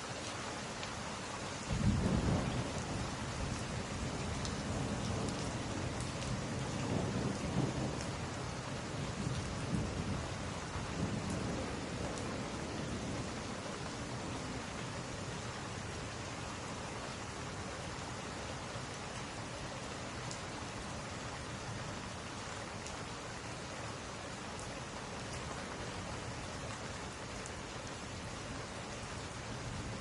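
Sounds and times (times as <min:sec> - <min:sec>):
steady rain: 0:00.0 - 0:30.0
thunder rumbling: 0:01.7 - 0:08.4.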